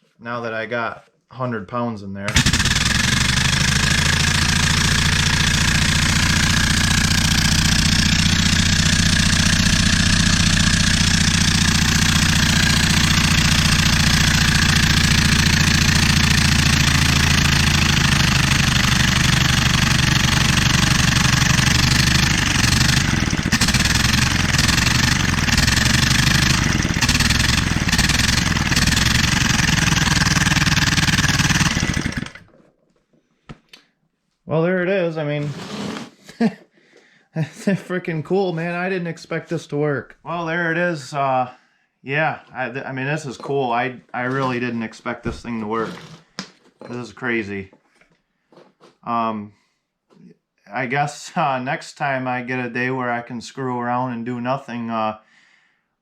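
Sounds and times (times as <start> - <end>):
air-powered engine screaming: 2.3 - 32.4.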